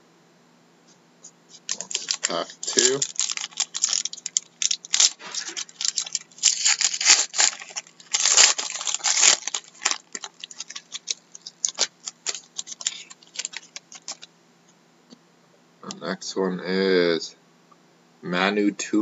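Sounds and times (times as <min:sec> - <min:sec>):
cards rustling: 0:01.5 - 0:14.3
foil pack tearing and crinkling: 0:01.7 - 0:14.3.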